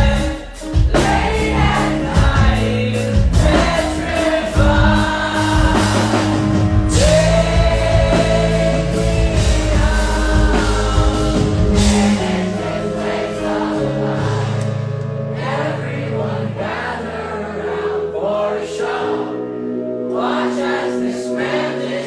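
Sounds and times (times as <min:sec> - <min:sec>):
steady low bass: 0:00.0 - 0:17.2
accompanying instruments: 0:00.0 - 0:22.0.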